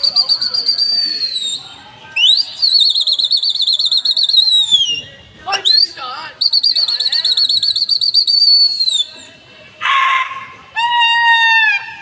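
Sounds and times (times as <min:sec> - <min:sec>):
high trilling whistle: 0:00.0 - 0:09.3.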